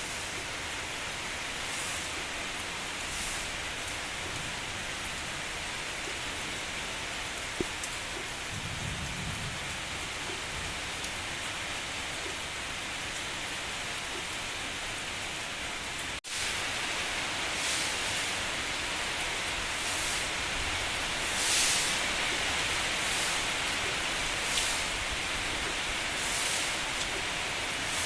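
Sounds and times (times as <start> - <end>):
heavy rain: 0.0 - 28.0
distant thunder rumble: 8.4 - 10.9.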